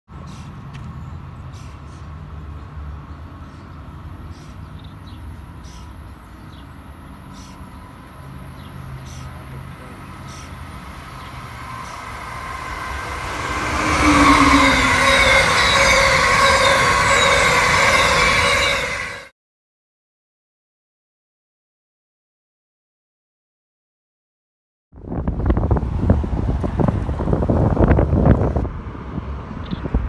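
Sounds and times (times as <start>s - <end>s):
train wheels rushing on rails: 7.2s - 19.3s
high wheel squeal: 9.9s - 19.3s.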